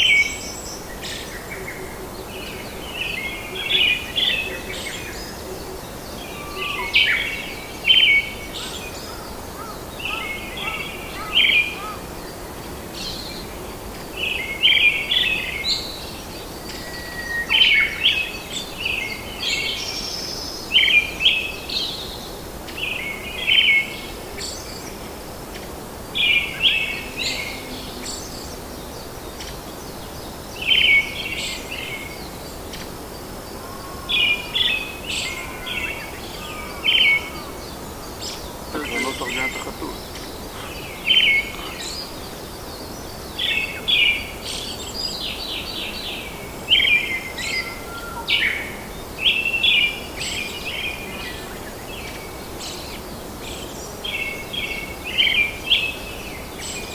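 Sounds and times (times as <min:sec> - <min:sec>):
steady background hiss: 0:00.0 - 0:56.9
birds chirping: 0:26.2 - 0:56.9.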